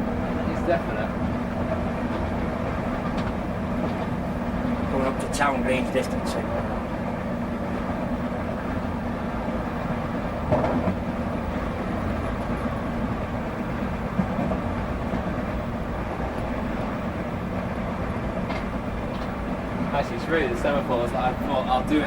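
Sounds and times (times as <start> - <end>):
constant hum: 0.0 - 22.0
train wheels rumbling on rail: 0.0 - 22.0
brief knock: 10.5 - 11.0.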